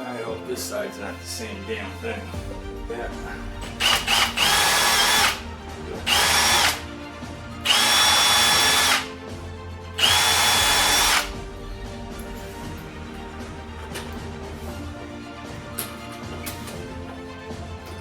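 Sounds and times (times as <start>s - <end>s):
electric drill whining: 3.6s - 6.9s, 7.6s - 9.2s, 10.0s - 11.4s.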